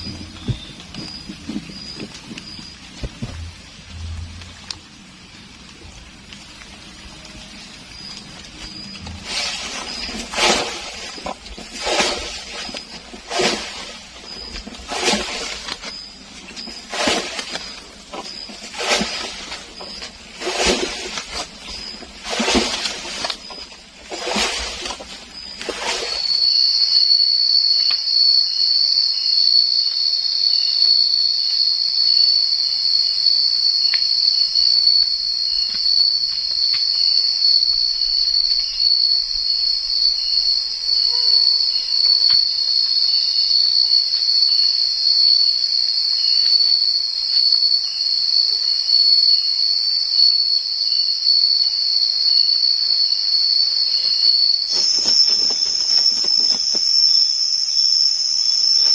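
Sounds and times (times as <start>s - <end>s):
rustling noise: 0.0s - 4.8s, 5.6s - 26.4s, 53.8s - 57.2s
cricket trilling: 0.0s - 58.9s.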